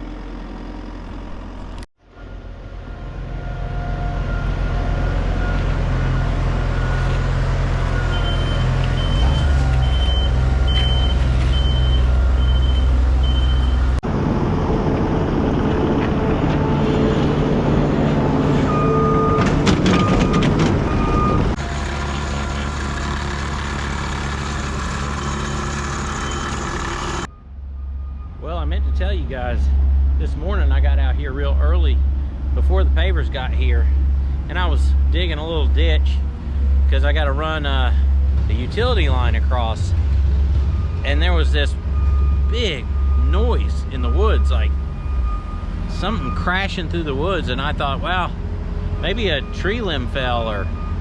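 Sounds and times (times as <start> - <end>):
diesel engines humming: 0.0 - 51.0
backup alarm beeping: 7.9 - 14.0, 18.7 - 21.6, 40.6 - 46.6
lower-pitched backup alarm beeping: 8.0 - 13.8, 41.9 - 46.6.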